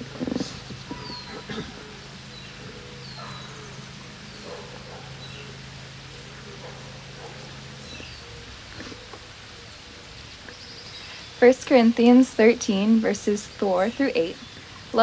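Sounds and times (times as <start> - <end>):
low steady hum: 0.0 - 15.0
outdoor ambience: 0.0 - 15.0
bird chirping: 0.7 - 11.4.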